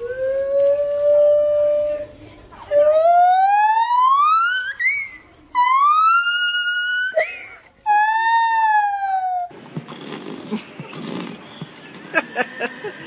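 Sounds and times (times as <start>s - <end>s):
low room noise: 0.0s - 13.0s
gibbon whooping calls: 2.7s - 9.5s.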